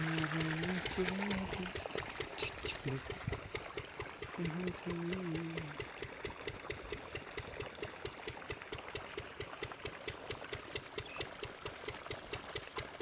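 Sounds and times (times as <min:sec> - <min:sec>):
diesel engine chugging: 0:00.0 - 0:12.9.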